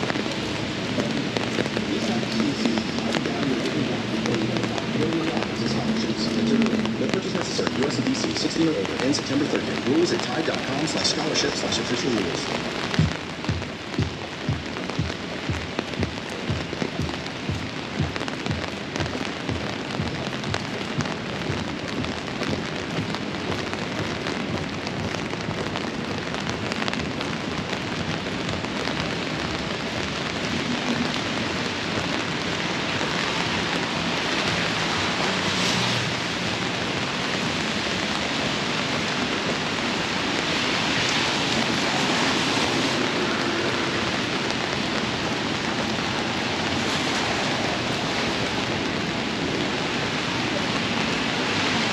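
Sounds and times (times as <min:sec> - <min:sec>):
heavy rain pouring: 0:00.0 - 0:51.9
irregular low taps: 0:12.8 - 0:27.3.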